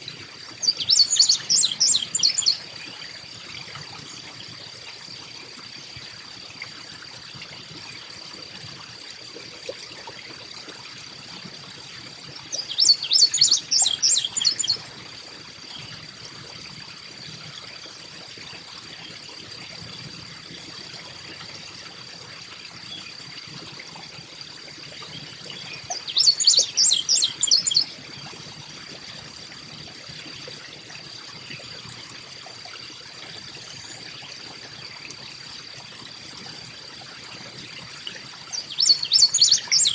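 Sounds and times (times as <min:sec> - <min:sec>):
chickadee calling: 0:00.6 - 0:02.6, 0:12.5 - 0:14.8, 0:25.8 - 0:27.9, 0:38.5 - 0:39.9.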